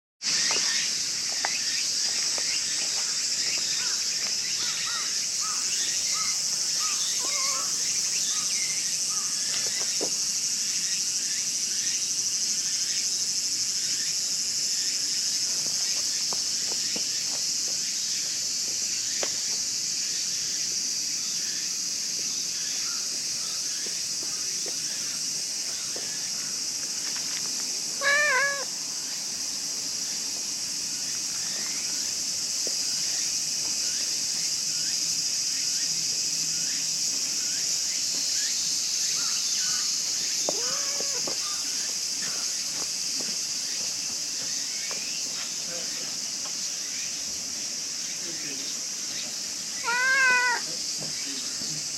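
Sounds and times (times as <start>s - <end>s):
insect chorus drone: 0.2s - 51.9s
cat meowing: 7.2s - 7.8s, 28.0s - 28.7s, 40.4s - 41.4s, 49.8s - 50.7s.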